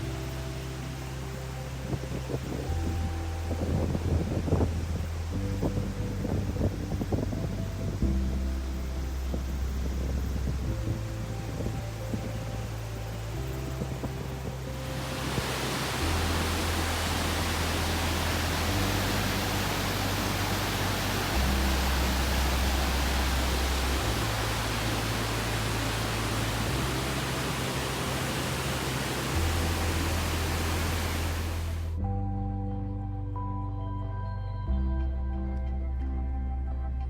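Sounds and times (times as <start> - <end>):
slow background music: 0.0 - 37.0
waterfall roaring: 14.9 - 31.9.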